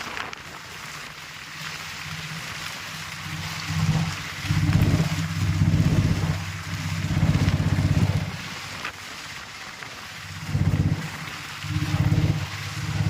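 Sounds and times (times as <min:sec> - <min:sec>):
heavy rain falling: 0:00.0 - 0:13.0
low rumble: 0:01.7 - 0:08.8, 0:10.1 - 0:13.0.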